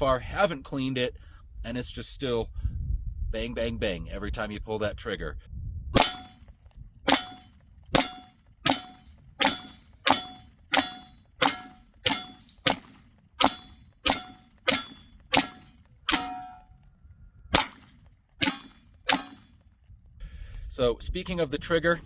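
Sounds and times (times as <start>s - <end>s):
pistol shots: 6.0s - 6.4s, 7.1s - 16.6s, 17.5s - 19.6s.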